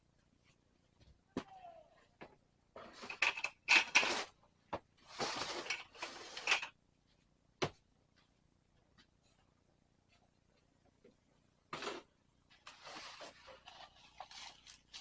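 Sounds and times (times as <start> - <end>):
rustling or scraping: 5.0 - 6.8, 11.7 - 15.0.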